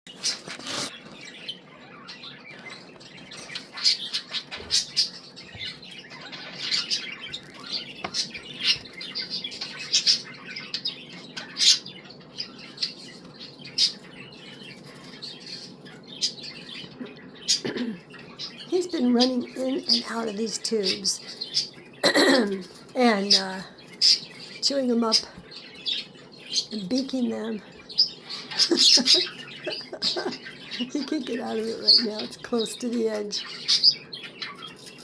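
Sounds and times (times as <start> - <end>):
budgerigar chirping: 23.3 - 35.0.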